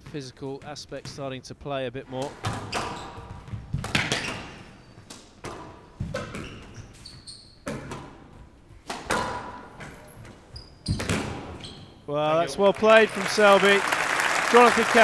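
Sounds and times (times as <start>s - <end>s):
shoes squeaking on court floor: 2.2s - 12.4s.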